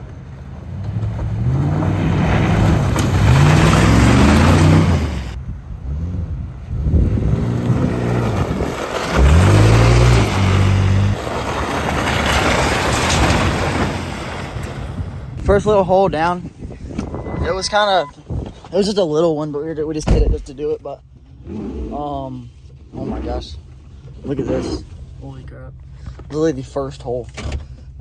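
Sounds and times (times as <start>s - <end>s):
pickup truck engine revving: 0.0s - 15.2s
tyres through mud: 0.0s - 28.0s.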